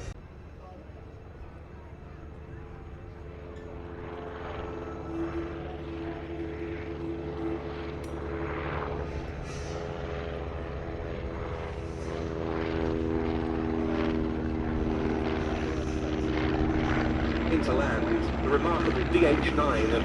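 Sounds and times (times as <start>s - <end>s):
propeller aircraft engines droning: 0.0s - 20.0s.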